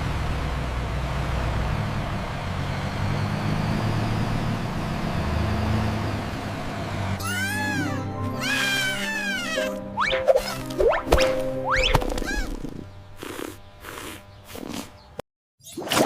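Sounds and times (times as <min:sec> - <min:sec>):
low shifting drones: 0:00.0 - 0:15.1
high-pitched rising and falling calls: 0:07.0 - 0:12.8
vehicle-like rumble with hiss: 0:12.6 - 0:15.2.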